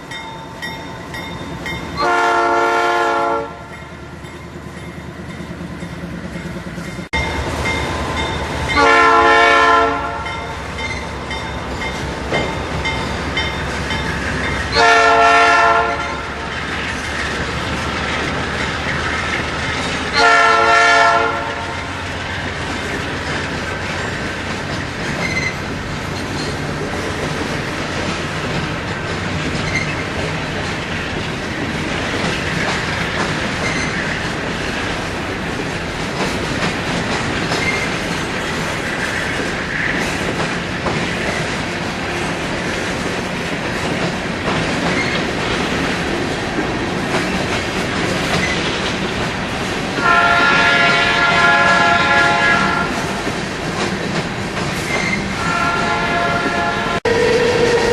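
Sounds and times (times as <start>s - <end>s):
train wheels clattering on rails: 0.0s - 57.9s
locomotive horn blasts: 2.0s - 3.8s, 8.6s - 10.6s, 14.7s - 16.4s, 20.2s - 21.8s, 50.0s - 53.0s, 55.4s - 57.9s.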